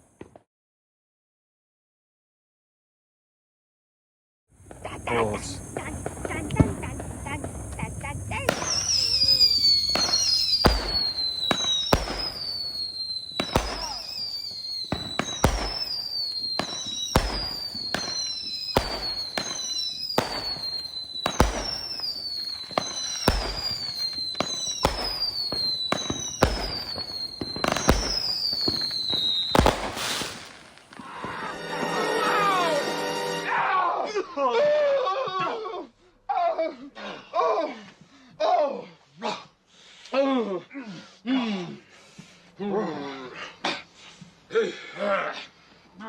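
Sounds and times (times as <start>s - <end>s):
firework launch thumps: 4.6s - 31.1s
falling firework whistle: 4.7s - 33.8s.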